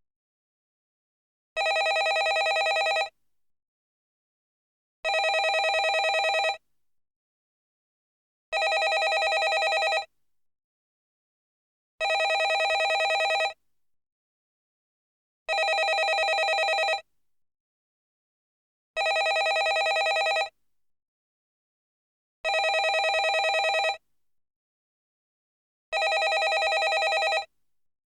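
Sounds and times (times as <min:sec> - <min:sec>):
telephone bell ringing: 0:01.6 - 0:03.1, 0:05.1 - 0:06.6, 0:08.6 - 0:10.1, 0:12.0 - 0:13.6, 0:15.5 - 0:17.0, 0:19.0 - 0:20.5, 0:22.5 - 0:24.0, 0:26.0 - 0:27.5.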